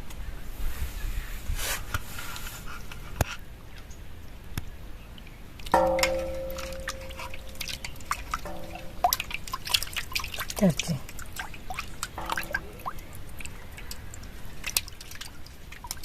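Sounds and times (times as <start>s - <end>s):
metal cooking pot ringing: 5.8s - 10.5s, 12.2s - 14.1s.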